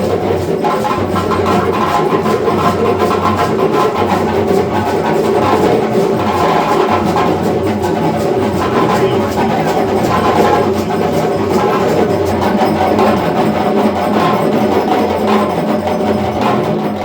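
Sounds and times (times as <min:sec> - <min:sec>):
african hand drums playing: 0:00.0 - 0:17.0.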